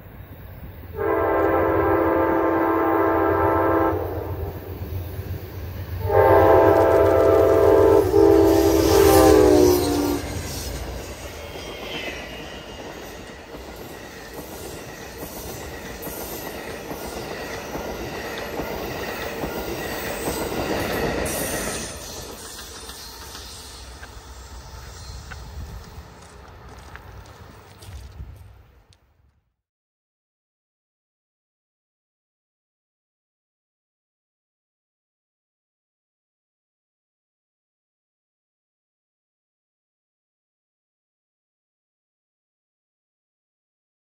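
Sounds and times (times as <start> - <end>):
locomotive air horn: 1.0 - 4.5, 6.0 - 10.4
train wheels rolling over rails: 4.2 - 28.8.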